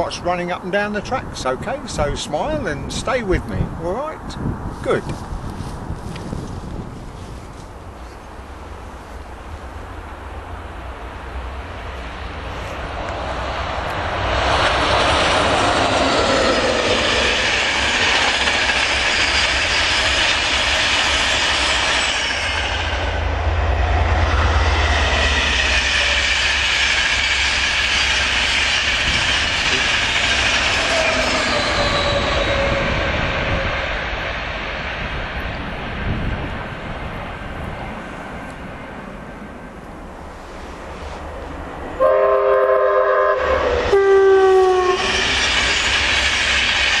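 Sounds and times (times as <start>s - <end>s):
train wheels on rails: 0.8s - 47.0s.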